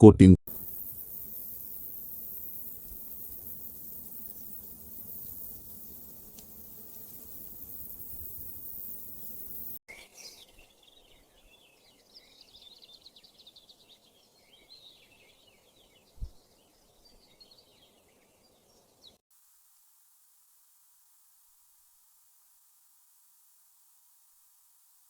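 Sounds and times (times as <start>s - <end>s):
faint hiss: 0.5s - 10.7s, 19.4s - 25.0s
small birds chirping: 0.5s - 19.2s.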